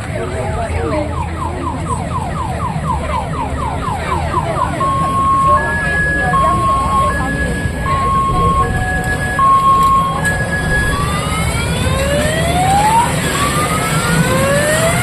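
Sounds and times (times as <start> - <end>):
traffic rumble: 0.0 - 15.0
electronic vehicle siren: 0.1 - 15.0.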